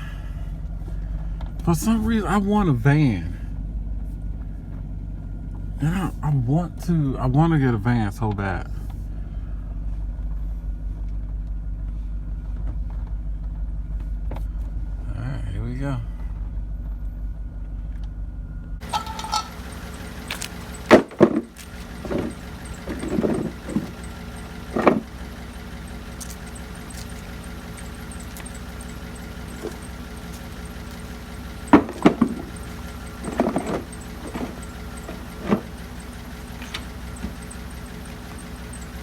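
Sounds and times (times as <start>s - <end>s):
vehicle engine running: 0.0s - 39.0s
clunks and rattles: 18.8s - 39.0s.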